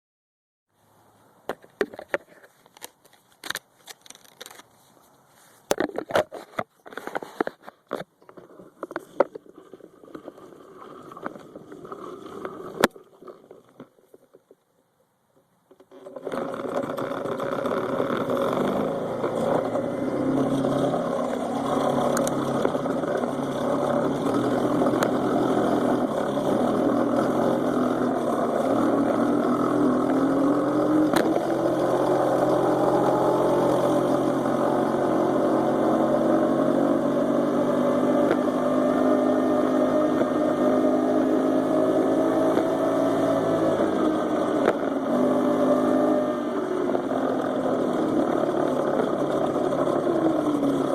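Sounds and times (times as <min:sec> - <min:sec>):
muffled small engine running: 0:15.8 - 0:50.9.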